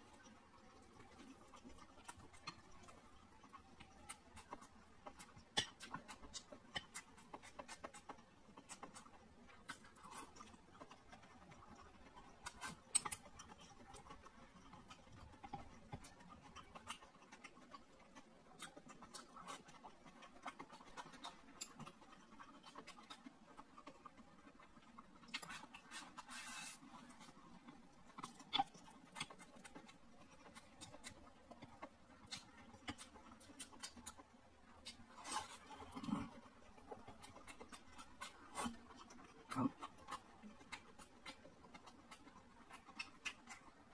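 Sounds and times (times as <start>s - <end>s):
person chewing food: 0.0s - 43.9s.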